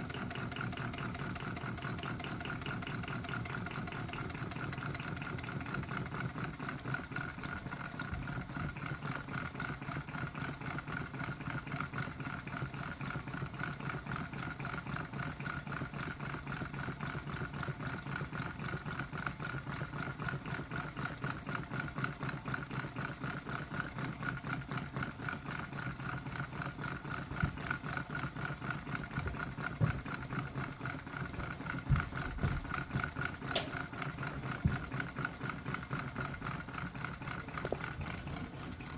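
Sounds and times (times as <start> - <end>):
engine mechanical clatter: 0.0 - 38.9.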